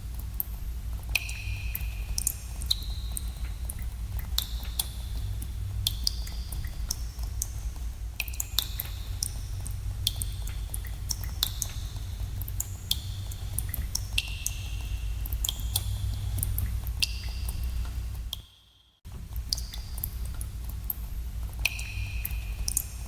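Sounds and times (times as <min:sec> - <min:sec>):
steady low hum: 0:00.0 - 0:18.4, 0:19.1 - 0:23.0
water drops plinking: 0:21.6 - 0:22.8.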